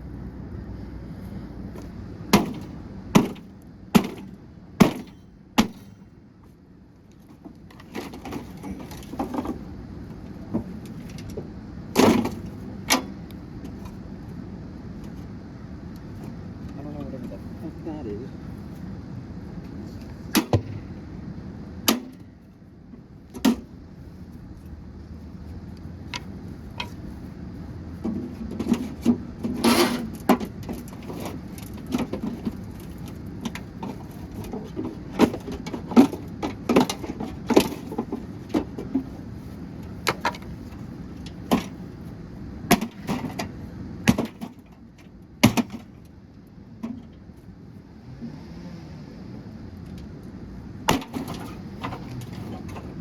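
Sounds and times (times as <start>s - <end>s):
low hum: 0.0s - 7.1s.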